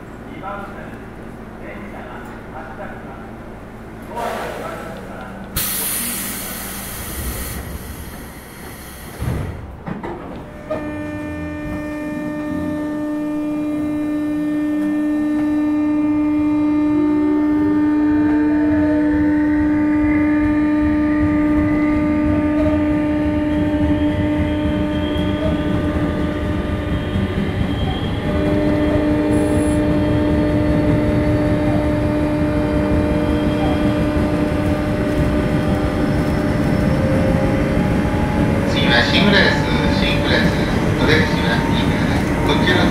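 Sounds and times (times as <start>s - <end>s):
air hiss: 5.6s - 9.2s
electric train chopper tone: 5.6s - 42.9s.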